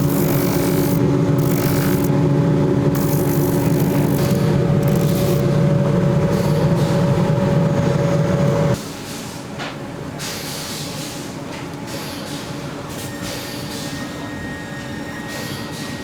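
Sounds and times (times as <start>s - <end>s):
electric workshop machine humming: 0.0s - 8.8s.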